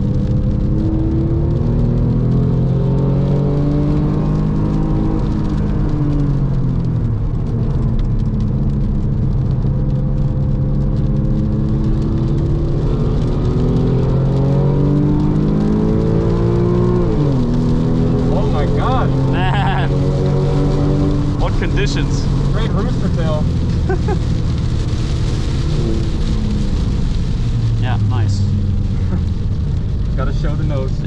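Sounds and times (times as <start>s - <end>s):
car engine at speed: 0.0s - 31.0s
tyres hissing on wet track: 21.3s - 27.3s.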